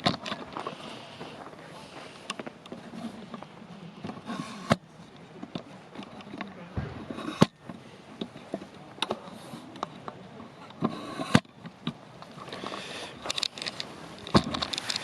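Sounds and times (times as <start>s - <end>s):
loud sharp pops: 6.7s - 8.6s.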